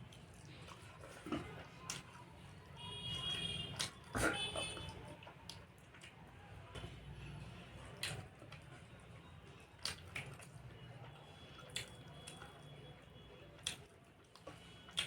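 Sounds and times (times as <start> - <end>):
wet chewing: 0.0 - 2.6, 3.2 - 6.4, 9.7 - 12.7, 13.6 - 15.0.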